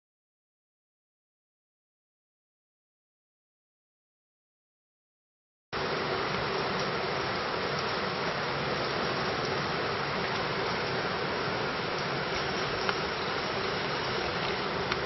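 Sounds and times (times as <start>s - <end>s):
steady rain hiss: 5.8s - 15.0s
faint raindrop ticks: 6.4s - 7.0s, 7.7s - 11.1s, 11.9s - 15.0s.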